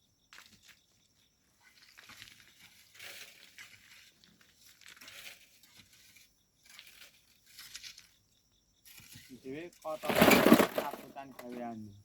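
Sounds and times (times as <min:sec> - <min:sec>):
hand tools scraping gravel: 0:01.6 - 0:08.2, 0:08.8 - 0:11.6.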